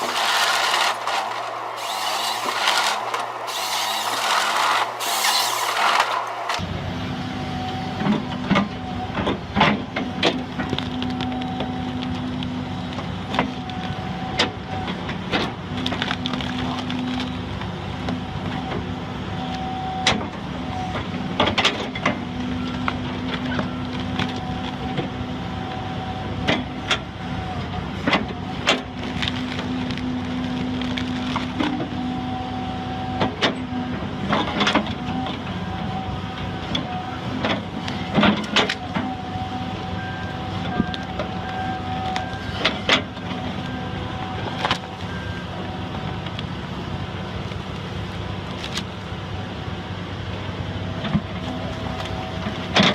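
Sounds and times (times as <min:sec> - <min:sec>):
machine whine: 0:00.0 - 0:09.2
heavy machine engine running: 0:00.0 - 0:52.9.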